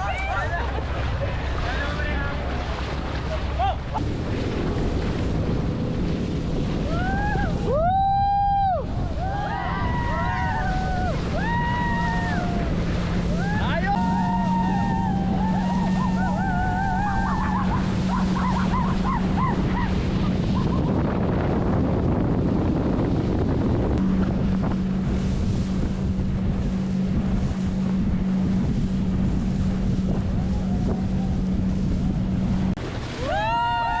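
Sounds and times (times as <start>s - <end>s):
motorboat engine droning: 0.0s - 34.0s
rushing water: 0.0s - 34.0s
wind buffeting microphone: 0.0s - 34.0s
high wavering voices: 13.3s - 20.9s.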